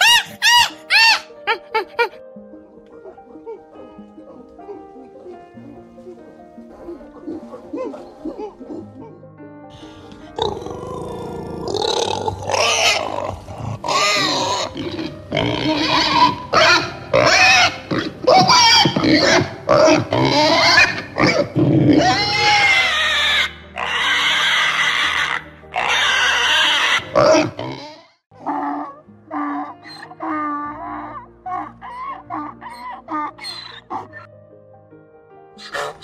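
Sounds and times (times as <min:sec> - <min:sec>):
pig squealing calls: 0:00.0 - 0:01.4, 0:10.4 - 0:34.3, 0:35.6 - 0:36.0.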